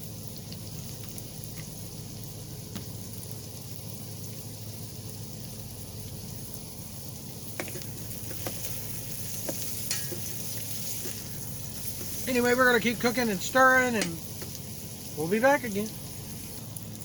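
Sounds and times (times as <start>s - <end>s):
squash sizzling in oil: 0.0s - 17.0s
utensil clicking against pot: 9.4s - 10.3s, 14.0s - 14.6s.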